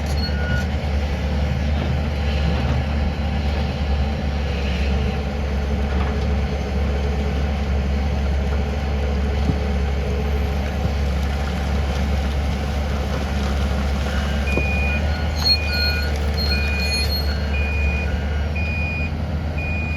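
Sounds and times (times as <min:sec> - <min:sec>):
excavator diesel engine rumbling: 0:00.0 - 0:19.9
reversing alarm beeping: 0:14.1 - 0:19.9.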